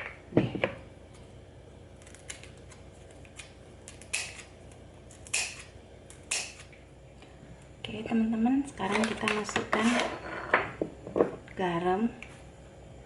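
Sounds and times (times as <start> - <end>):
scissors snipping leaves: 2.0 - 6.8.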